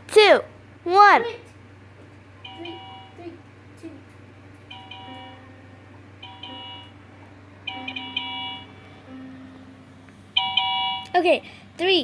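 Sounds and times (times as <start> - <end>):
faint steady hum: 0.0 - 12.0
toy laptop chime beeps: 6.2 - 6.9, 7.7 - 8.7
low held tone: 7.6 - 11.1.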